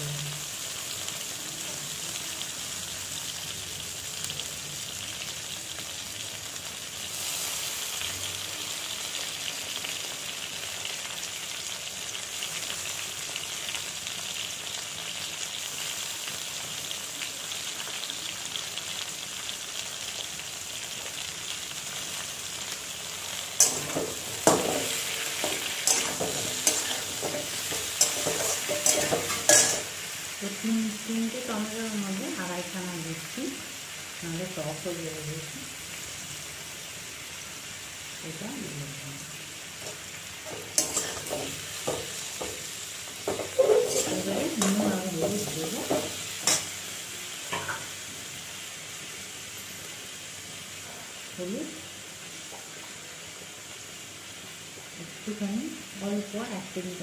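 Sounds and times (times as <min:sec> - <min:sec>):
vegetables sizzling in hot oil: 0:00.0 - 0:57.0
spatula knocking and scraping pan: 0:23.6 - 0:29.9, 0:39.8 - 0:46.7.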